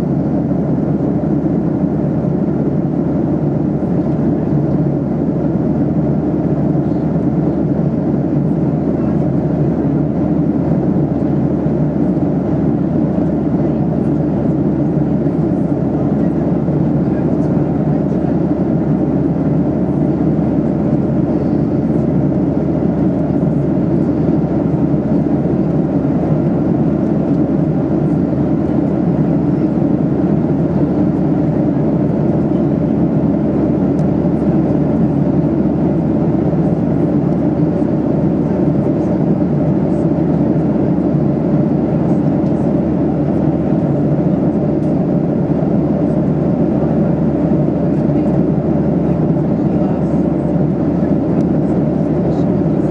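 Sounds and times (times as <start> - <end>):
airplane cabin engine roar: 0.0 - 52.9.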